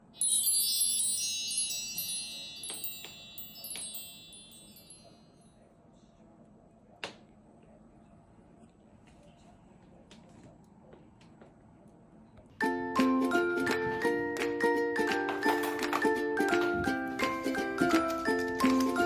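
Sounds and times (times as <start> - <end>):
high metal chimes tinkling: 0.0 - 5.6.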